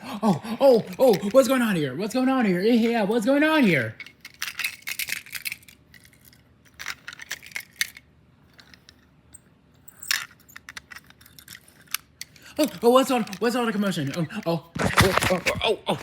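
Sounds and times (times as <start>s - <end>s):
toy cars clicking and clacking: 4.0s - 9.0s, 10.0s - 14.5s.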